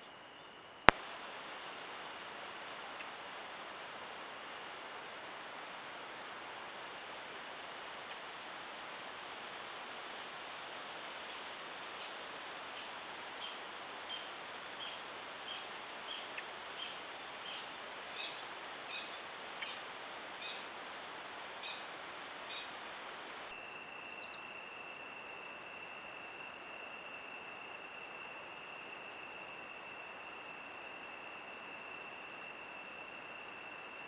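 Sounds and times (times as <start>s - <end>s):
camera hiss: 0.0s - 34.0s
high-pitched insect trill: 23.5s - 34.0s.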